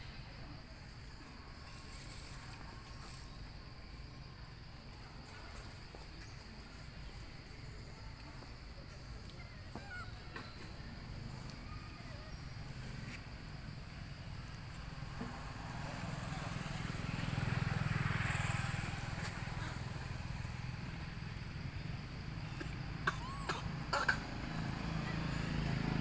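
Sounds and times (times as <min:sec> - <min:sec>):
vehicle engine passing by: 0:11.0 - 0:26.0.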